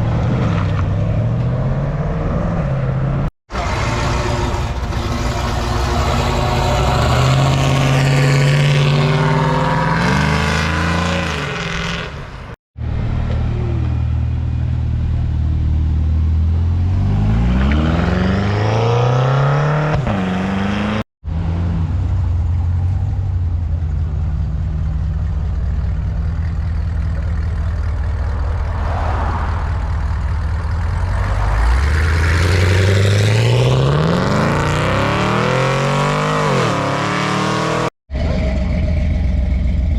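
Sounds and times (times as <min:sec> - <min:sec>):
car engines accelerating hard: 0:00.0 - 0:12.1, 0:26.9 - 0:39.5.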